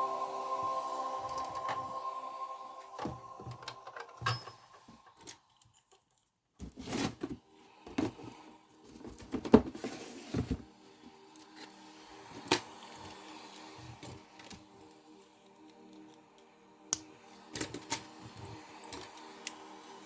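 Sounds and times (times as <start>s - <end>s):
faint background music: 0.0s - 20.0s.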